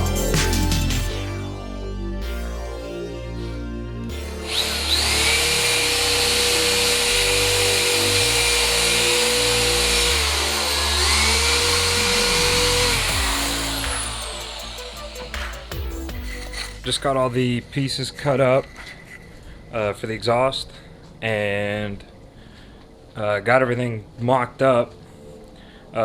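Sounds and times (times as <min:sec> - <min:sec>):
background music: 0:00.0 - 0:17.8
power tool cutting tubing: 0:04.2 - 0:16.9.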